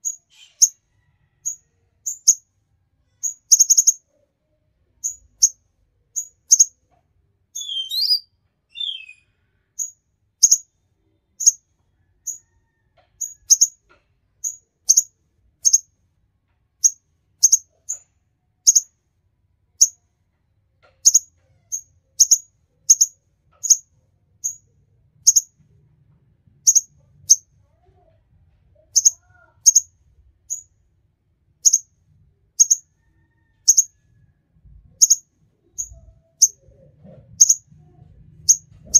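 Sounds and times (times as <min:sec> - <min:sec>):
songbird chirping: 0:00.0 - 0:02.5, 0:03.1 - 0:04.1, 0:05.0 - 0:06.8, 0:07.5 - 0:15.9, 0:16.8 - 0:19.0, 0:20.8 - 0:25.6, 0:26.6 - 0:27.4, 0:28.8 - 0:30.8, 0:31.6 - 0:34.0, 0:34.9 - 0:38.9
bird warbling: 0:07.6 - 0:09.2.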